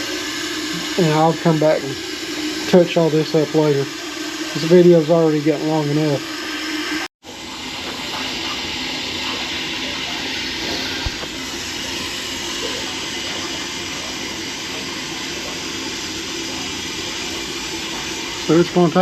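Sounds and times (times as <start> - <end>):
water running into tank: 0.0 - 19.0.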